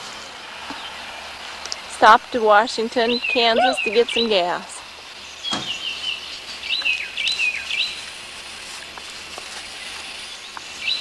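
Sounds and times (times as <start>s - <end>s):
steady background hiss: 0.0s - 11.0s
birds chirping: 2.8s - 8.0s.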